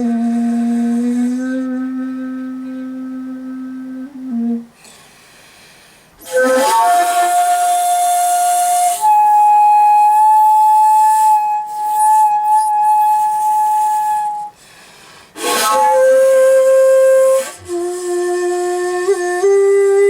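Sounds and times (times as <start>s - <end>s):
shakuhachi playing long notes: 0.0s - 4.9s, 6.2s - 14.6s, 15.3s - 20.0s.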